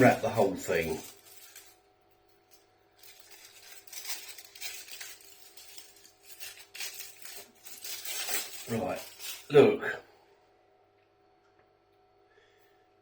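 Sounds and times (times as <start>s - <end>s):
foil wrapper crinkling: 0.0s - 1.8s, 3.0s - 9.7s.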